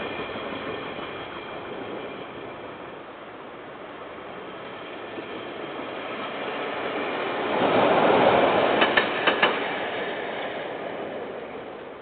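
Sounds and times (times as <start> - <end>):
train wheel-on-rail rush: 0.0 - 12.0
wheels clacking over rail joint: 8.2 - 10.5.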